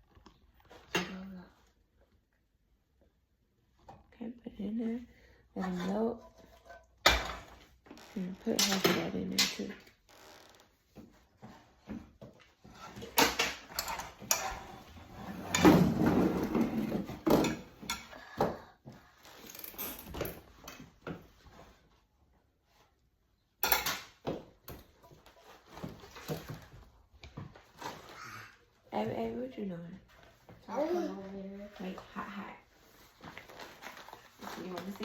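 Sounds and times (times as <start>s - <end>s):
pans and utensils clattering: 12.8s - 18.1s.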